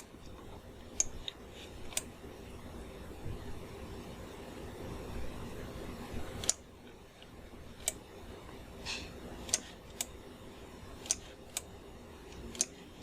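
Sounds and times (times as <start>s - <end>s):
faint room hum: 0.0s - 13.0s
computer input clicks: 9.4s - 10.2s, 11.0s - 13.0s.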